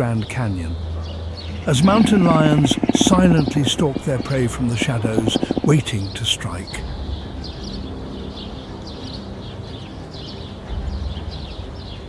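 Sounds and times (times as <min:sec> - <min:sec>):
small birds chirping: 0:01.0 - 0:06.2
steady low rumble: 0:01.5 - 0:05.9.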